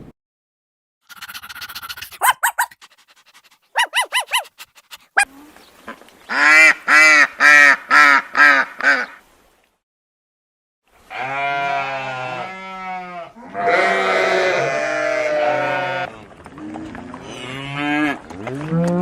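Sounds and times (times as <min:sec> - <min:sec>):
waterfowl calling: 0:03.8 - 0:04.5.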